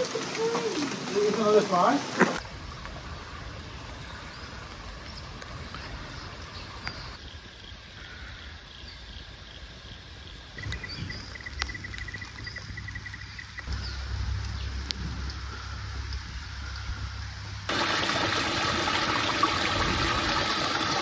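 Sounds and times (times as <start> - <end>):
heavy rain hissing: 0.0 - 7.2, 13.7 - 21.0.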